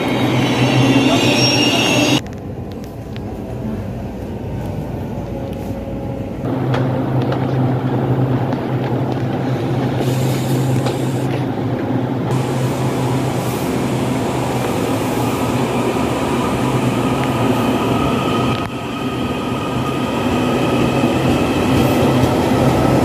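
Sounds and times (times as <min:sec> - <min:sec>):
train wheel squeal: 0:00.0 - 0:02.2
low electric train hum: 0:00.0 - 0:23.0.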